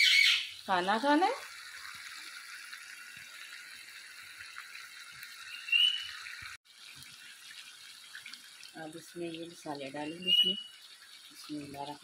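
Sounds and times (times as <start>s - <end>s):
chicken sizzling in a wok: 0.0s - 12.0s.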